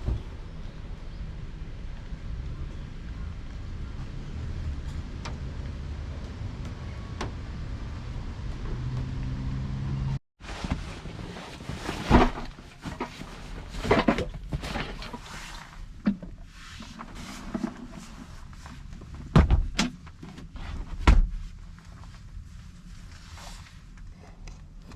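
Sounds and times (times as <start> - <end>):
objects handled inside a car: 10.4 - 24.9.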